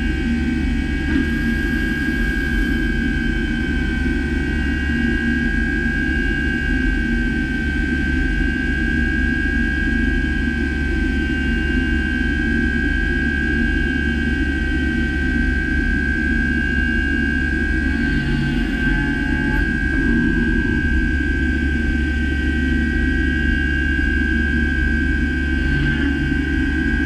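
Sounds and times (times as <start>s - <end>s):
high machine whine: 0.0s - 27.0s
low machine rumble: 0.0s - 27.0s
milling machine running: 17.5s - 23.5s.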